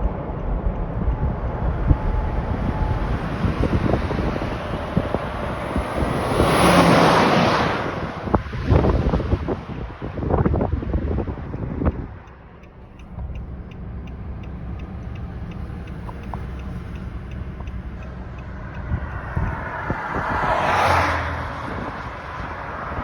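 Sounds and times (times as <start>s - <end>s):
motor vehicle rumbling: 0.0s - 23.0s
fast regular ticking: 11.5s - 20.1s.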